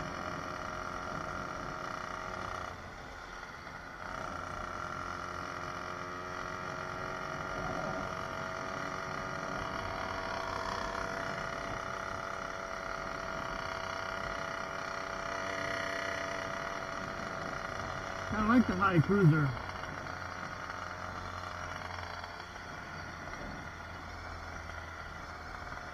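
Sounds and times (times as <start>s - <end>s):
two-stroke bicycle engine running: 0.0s - 25.9s.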